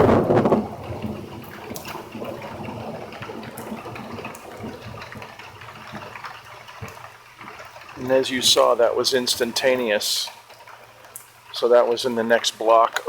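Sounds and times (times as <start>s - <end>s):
drips and patters: 0.0s - 13.0s
heavy rain pouring: 0.0s - 13.0s.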